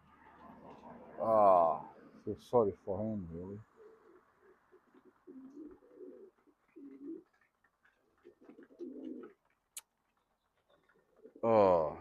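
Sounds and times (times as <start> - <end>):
pigeons cooing: 3.6 - 9.4, 10.9 - 11.9.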